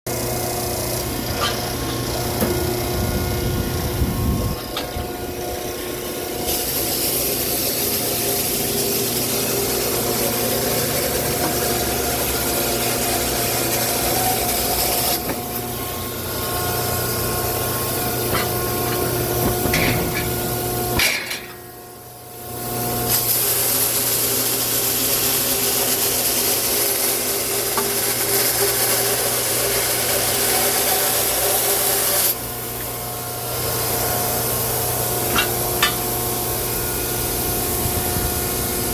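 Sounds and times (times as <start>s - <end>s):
wood being cut: 0.1s - 20.9s, 23.4s - 32.4s
motor hum: 0.1s - 23.1s, 32.4s - 38.9s.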